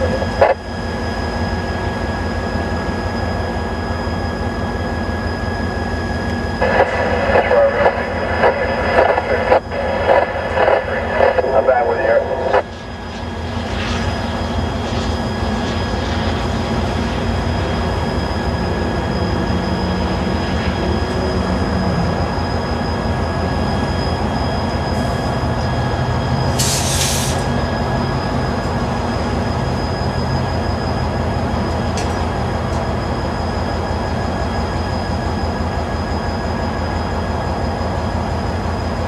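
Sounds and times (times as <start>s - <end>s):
train wheels rumbling on rail: 12.6s - 39.0s
high ringing tones: 27.4s - 39.0s.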